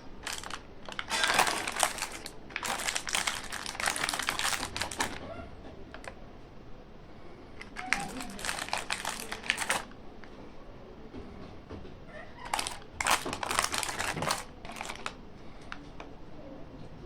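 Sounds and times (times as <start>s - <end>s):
plastic wrappers crinkling: 0.0s - 5.3s, 7.6s - 10.0s, 12.4s - 15.2s.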